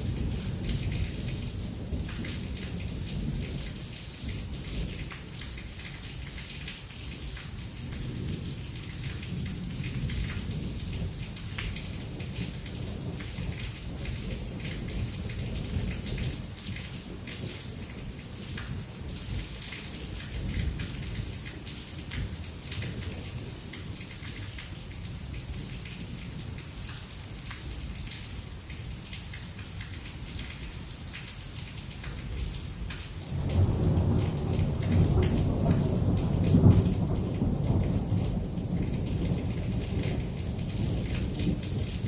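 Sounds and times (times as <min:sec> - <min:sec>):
heavy rain falling: 0:00.0 - 0:42.0
thunder rumbling: 0:33.3 - 0:42.0.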